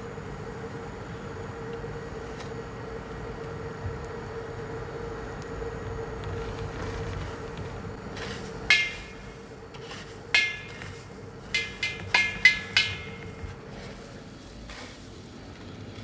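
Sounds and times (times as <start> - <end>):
metal clinks ringing: 8.7 - 9.5, 10.4 - 13.5.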